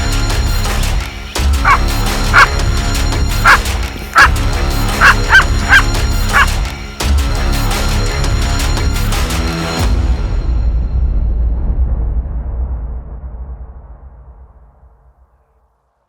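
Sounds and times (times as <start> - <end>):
background music: 0.0 - 10.8
dog yipping: 1.6 - 1.8, 5.0 - 6.5.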